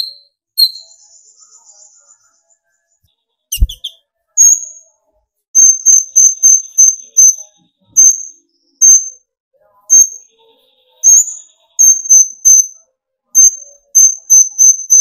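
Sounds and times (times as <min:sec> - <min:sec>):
bird high piercing calls: 0:00.0 - 0:01.0, 0:03.5 - 0:04.8.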